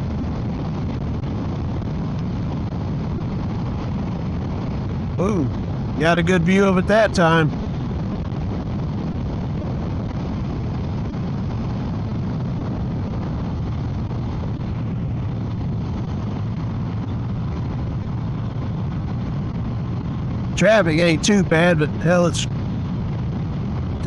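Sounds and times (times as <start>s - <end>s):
motorcycle engine drone: 0.0s - 24.0s
wind and road noise: 0.0s - 24.0s.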